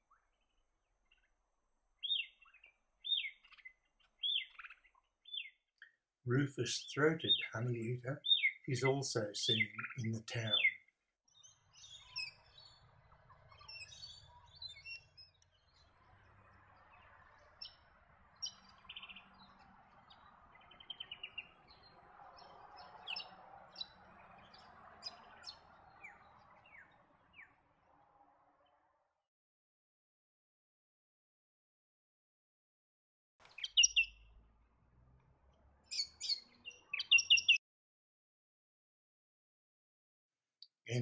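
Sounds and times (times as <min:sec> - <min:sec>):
small birds chirping: 0:00.0 - 0:01.4, 0:02.0 - 0:27.8, 0:33.4 - 0:34.5, 0:35.5 - 0:37.6.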